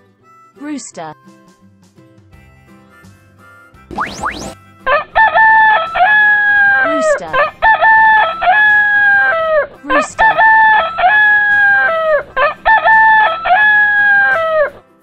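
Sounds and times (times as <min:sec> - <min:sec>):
rooster crowing: 0:04.9 - 0:14.8.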